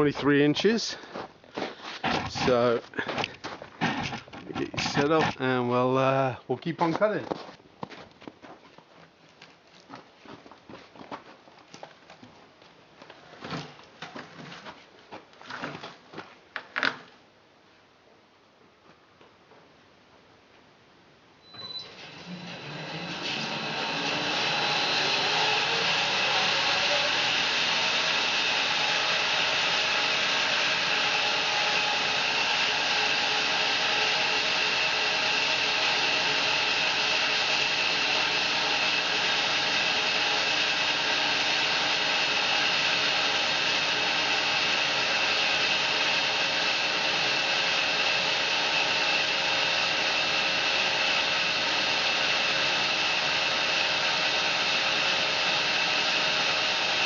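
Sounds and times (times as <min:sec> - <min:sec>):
bandsaw mill cutting log: 0:02.0 - 0:03.2, 0:03.8 - 0:05.6, 0:21.6 - 0:57.0.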